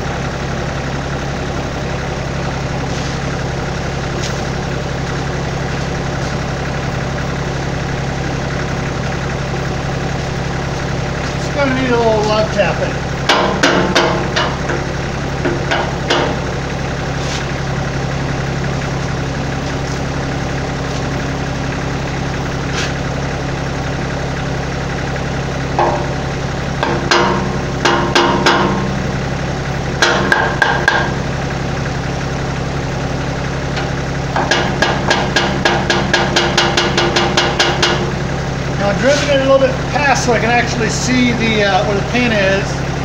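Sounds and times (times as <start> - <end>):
diesel engine idling: 0.0 - 43.0
hammer tapping on metal: 34.4 - 38.0.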